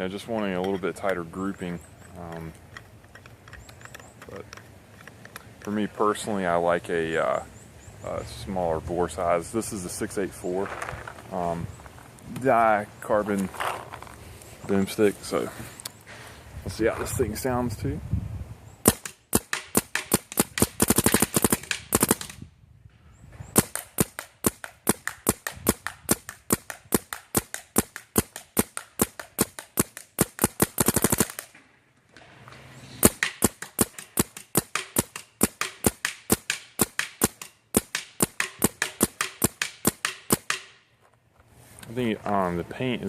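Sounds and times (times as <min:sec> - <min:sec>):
paintball marker firing: 0:18.8 - 0:22.4, 0:23.6 - 0:31.6, 0:33.0 - 0:40.8.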